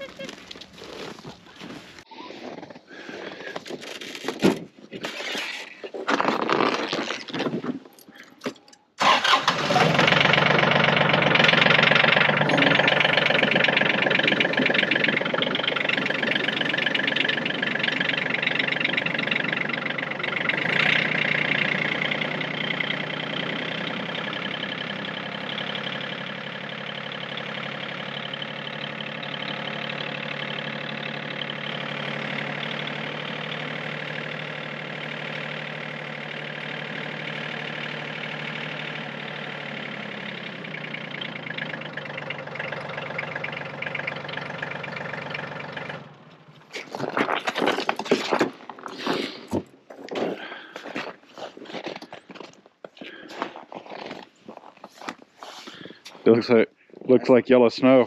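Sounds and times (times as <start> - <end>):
tractor diesel engine starting: 8.3 - 51.2.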